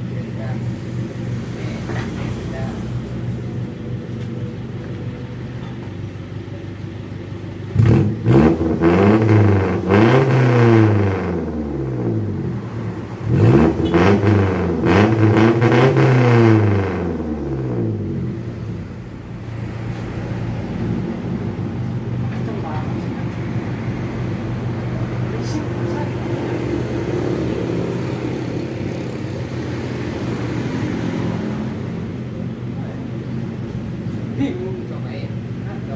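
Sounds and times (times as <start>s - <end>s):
loud motorcycle engine revving: 7.7s - 18.8s, 20.4s - 33.6s.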